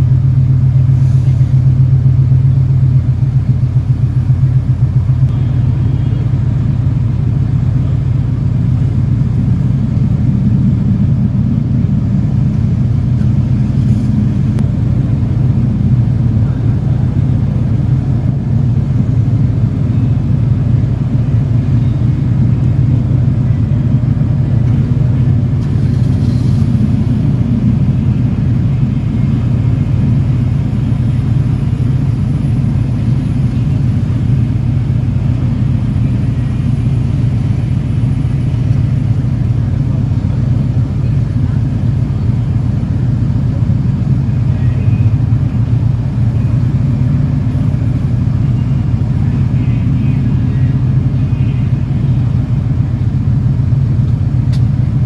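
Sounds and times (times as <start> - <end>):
motorcycle engine rumble: 0.0 - 55.0.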